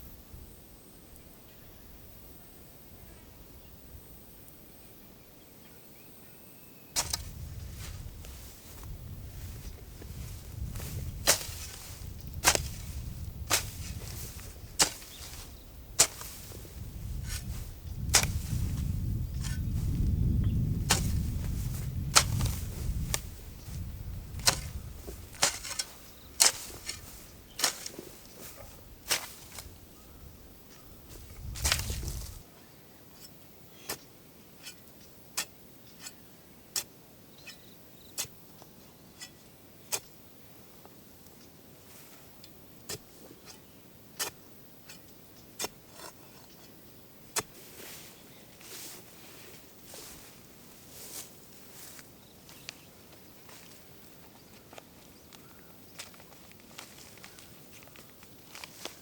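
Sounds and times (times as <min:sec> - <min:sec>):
low steady hiss: 0:00.0 - 0:46.0.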